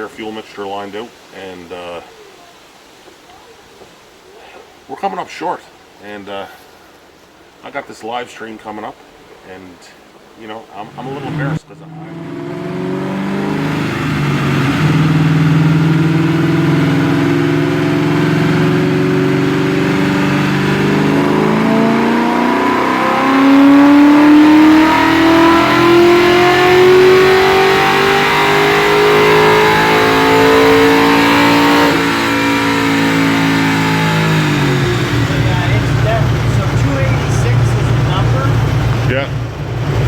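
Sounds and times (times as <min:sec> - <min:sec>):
vee eight engine at full throttle: 0:10.8 - 0:40.0.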